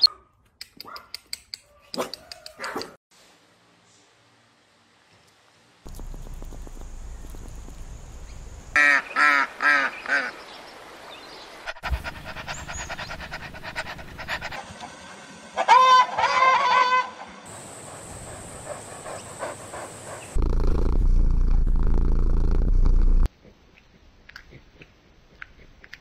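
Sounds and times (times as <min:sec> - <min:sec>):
waterfowl honking: 0:08.8 - 0:10.4, 0:15.6 - 0:17.4.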